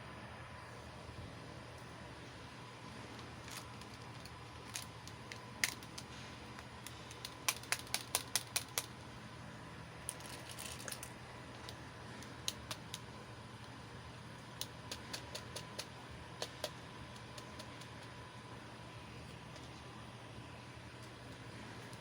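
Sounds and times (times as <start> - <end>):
plastic toy pieces clicking: 3.4 - 6.1, 6.8 - 8.9, 12.4 - 13.1, 14.6 - 18.1.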